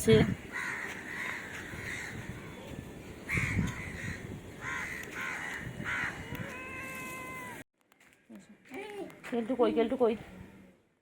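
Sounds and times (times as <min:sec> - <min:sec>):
crows cawing: 0:00.5 - 0:02.4, 0:03.3 - 0:07.6.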